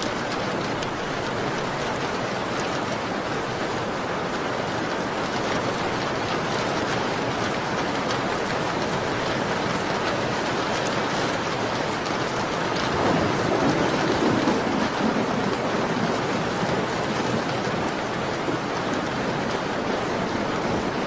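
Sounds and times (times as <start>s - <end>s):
rain on a window: 0.0s - 21.0s.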